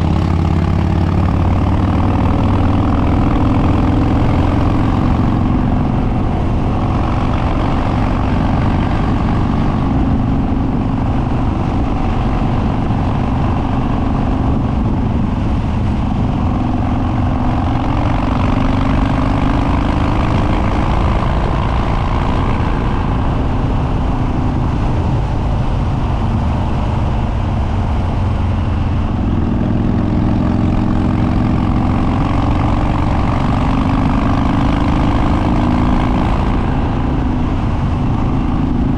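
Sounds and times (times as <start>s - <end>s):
motorcycle engine running loud: 0.0s - 38.9s.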